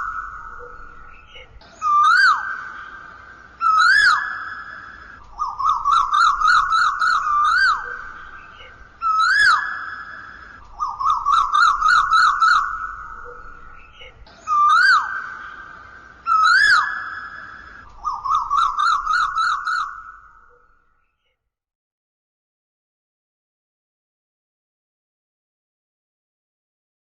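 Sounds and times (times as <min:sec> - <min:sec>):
high whistle-like warbling call: 0:00.0 - 0:20.7.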